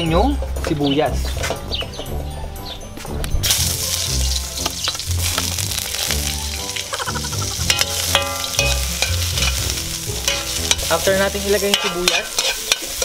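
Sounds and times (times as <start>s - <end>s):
background music: 0.0s - 13.0s
onions sizzling in oil: 3.4s - 13.0s
ladle stirring in wok: 7.6s - 13.0s.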